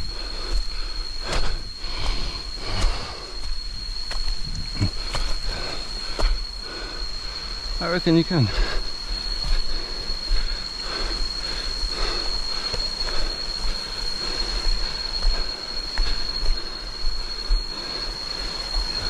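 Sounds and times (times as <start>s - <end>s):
cicadas droning: 0.0s - 19.0s
wind rumble on microphone: 1.7s - 5.3s.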